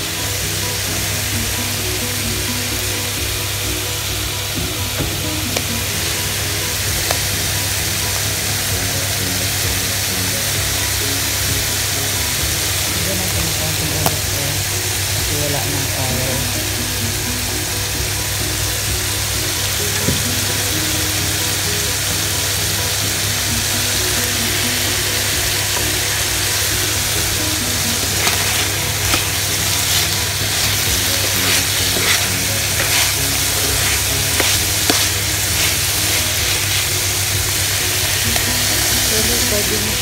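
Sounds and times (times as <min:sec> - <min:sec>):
chicken and vegetables sizzling in pan: 0:00.0 - 0:40.0
spatula scraping and knocking pan: 0:27.1 - 0:39.4.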